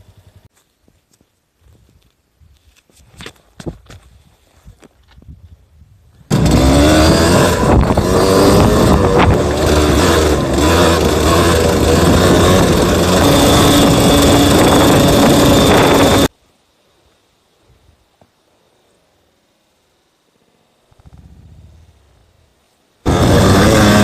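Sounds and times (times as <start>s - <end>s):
two-stroke dirt bike engine: 6.3s - 16.3s, 23.0s - 24.0s.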